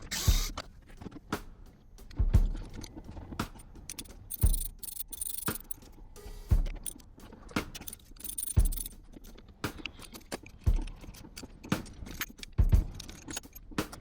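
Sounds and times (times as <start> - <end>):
sharp metal clinks and knocks: 3.9 - 5.9, 6.8 - 7.0, 7.7 - 10.6, 11.8 - 14.0.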